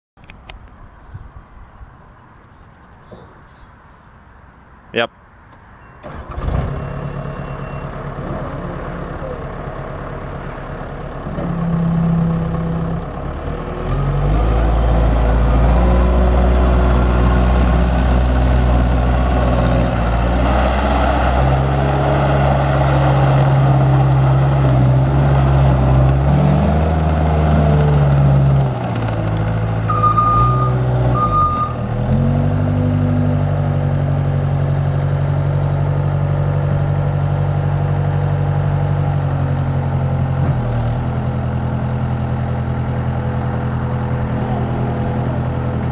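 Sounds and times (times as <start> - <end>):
diesel engine revving: 6.0 - 45.9
short beeps: 6.7 - 8.0, 29.9 - 31.8.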